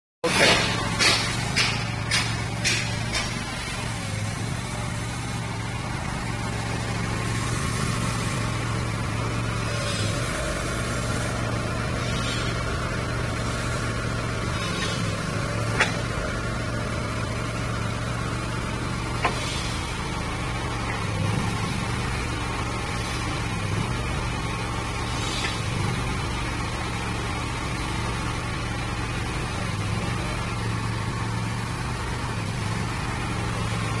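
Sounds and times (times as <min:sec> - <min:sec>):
diesel engine running: 0:00.2 - 0:34.0
sharp knocks: 0:00.4 - 0:03.5.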